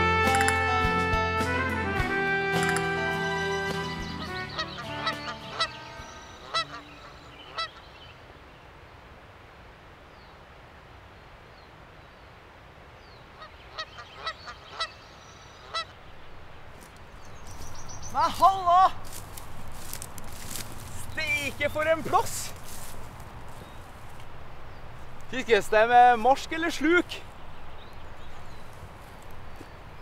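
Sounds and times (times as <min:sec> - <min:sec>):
brass music: 0:00.0 - 0:07.1
honking bird calls: 0:00.0 - 0:08.0, 0:13.4 - 0:30.0
faint outdoor hiss: 0:00.0 - 0:30.0.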